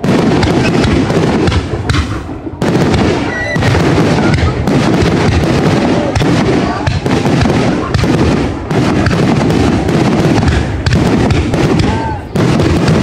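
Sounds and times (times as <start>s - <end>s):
fireworks bangs and crackling: 0.0s - 13.0s
firework whistle: 3.2s - 4.6s.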